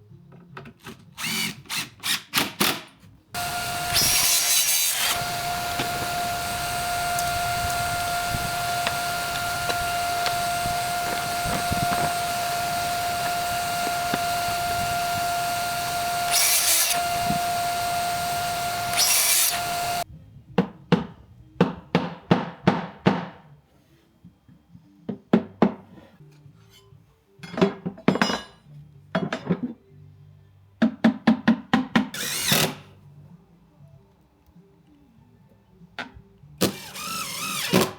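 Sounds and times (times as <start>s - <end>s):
short sharp power tool bursts: 3.4s - 20.0s
track saw motor whine: 3.4s - 20.0s.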